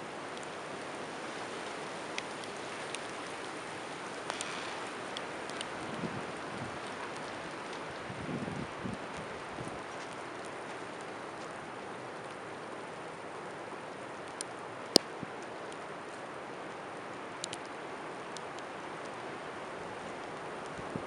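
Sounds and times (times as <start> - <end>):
blizzard wind and blowing snow: 0.0 - 21.0
sharp ticks: 4.3 - 5.7.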